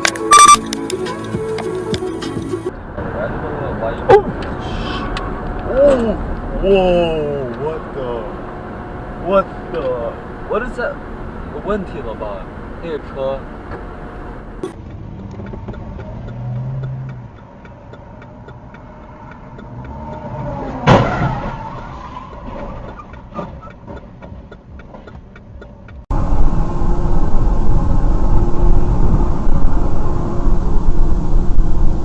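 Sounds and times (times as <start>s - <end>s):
car road noise: 0.0s - 32.0s
wind and road rumble: 0.0s - 32.0s
vehicle collision bang: 20.7s - 21.6s.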